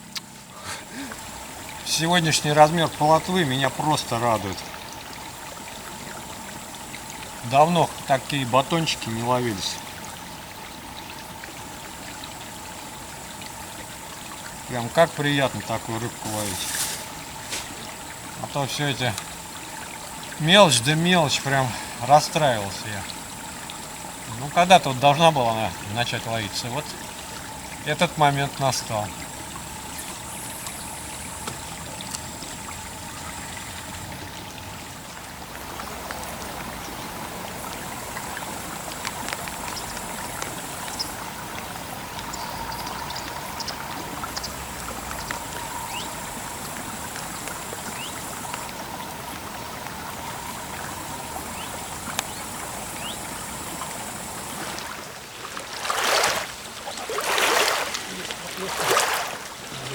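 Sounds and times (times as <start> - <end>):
river water flowing: 0.0 - 59.9
water rushing: 0.0 - 59.9.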